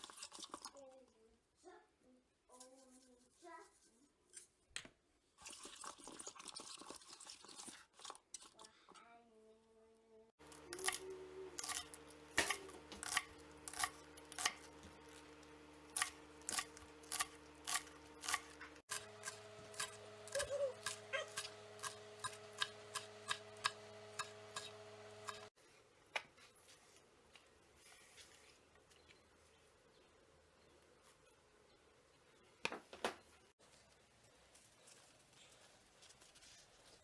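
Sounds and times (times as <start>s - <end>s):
steady hum: 10.4s - 25.5s
knife chopping on cutting board: 11.6s - 15.0s, 16.0s - 25.5s.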